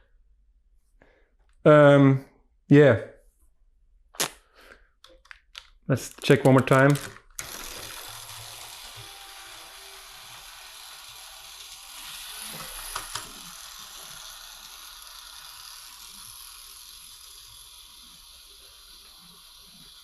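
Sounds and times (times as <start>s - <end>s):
sharp clicks: 5.0s - 8.1s
toy train motor whirring rattle: 6.9s - 20.0s.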